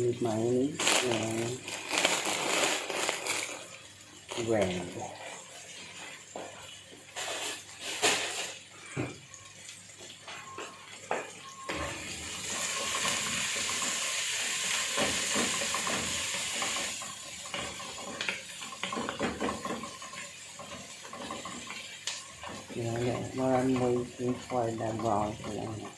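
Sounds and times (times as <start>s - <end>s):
onions frying in oil: 0.0s - 25.9s
utensils and dishes clattering: 0.8s - 3.7s, 4.3s - 9.0s, 14.8s - 25.9s.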